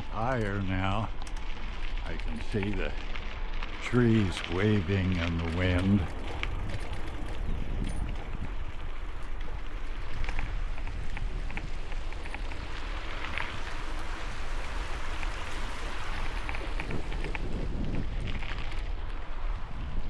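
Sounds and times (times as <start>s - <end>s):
faint ticks: 0.0s - 19.9s
strong wind on microphone: 5.8s - 12.8s, 13.5s - 20.0s.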